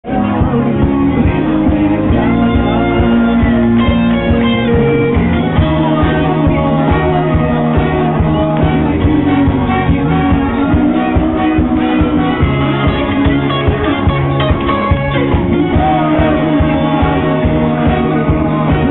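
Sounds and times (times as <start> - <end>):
electric guitar: 0.0 - 18.9
rock band playing: 0.0 - 18.9.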